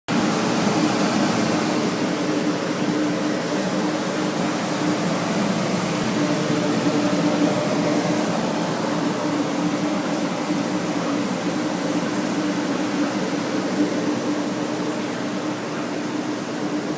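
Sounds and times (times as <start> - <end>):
drying fans rushing: 0.1 - 16.9.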